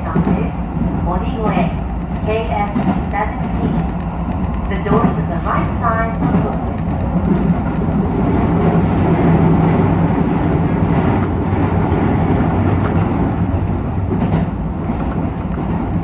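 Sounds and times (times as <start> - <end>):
train wheels rumbling on rails: 0.0 - 16.0
faint clicks: 1.5 - 8.0.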